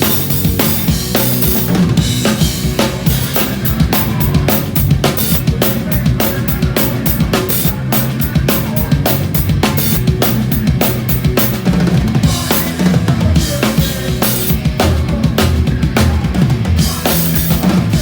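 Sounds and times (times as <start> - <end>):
drum kit fast beat: 0.0 - 18.0
low bass notes: 0.0 - 18.0
punk band playing live: 0.0 - 18.0.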